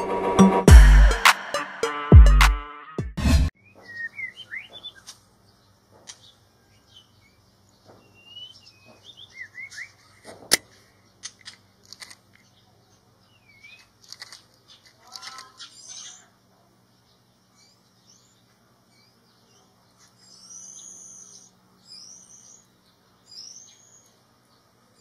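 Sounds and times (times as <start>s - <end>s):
bird chirps and tweets: 3.6s - 10.2s, 12.4s - 16.3s, 16.9s - 25.0s
nestling begging calls: 14.7s - 16.4s.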